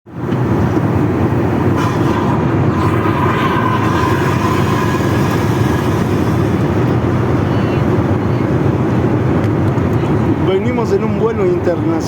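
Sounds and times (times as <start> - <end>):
airliner cabin rumble: 0.1 - 11.7
faint high whine: 0.8 - 8.5.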